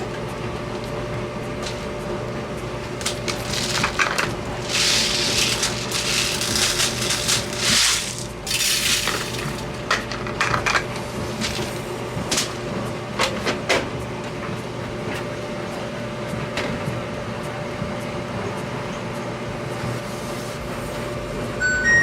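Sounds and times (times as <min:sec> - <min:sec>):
clothes rustling: 0:02.9 - 0:09.6.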